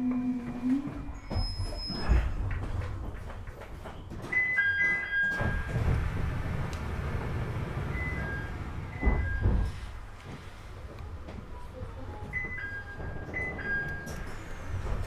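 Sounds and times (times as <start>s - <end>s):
wheels rumbling on rail: 0.0s - 15.0s
heavy thuds: 5.4s - 10.8s.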